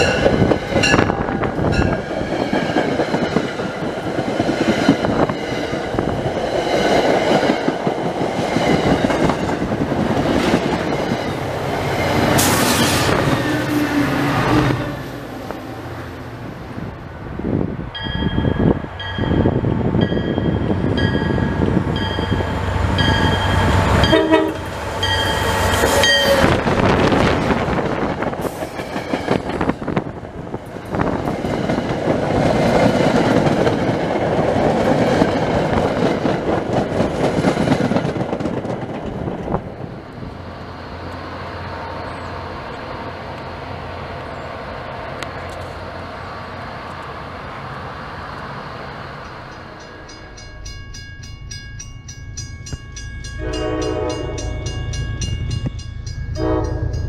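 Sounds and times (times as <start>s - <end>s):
train bell ringing: 0.0s - 2.1s, 17.9s - 26.6s, 49.2s - 57.0s
train wheels rumbling and clattering: 0.0s - 47.3s
train horn: 23.6s - 27.0s, 53.4s - 54.8s, 56.4s - 57.0s.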